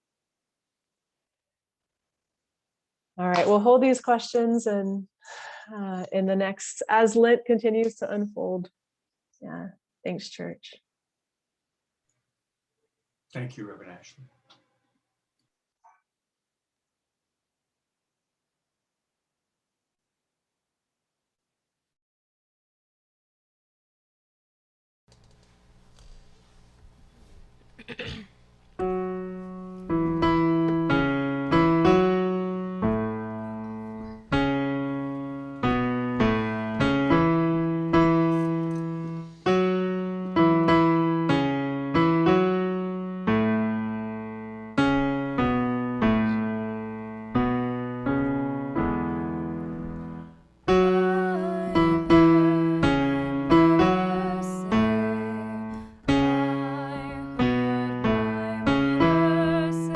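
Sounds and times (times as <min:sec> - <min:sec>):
slow piano chords: 0:28.8 - 0:59.9.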